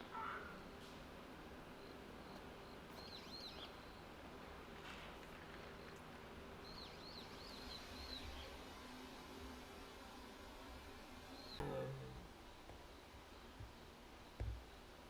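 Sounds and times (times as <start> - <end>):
small birds chirping: 1.7 - 4.3, 5.2 - 8.9.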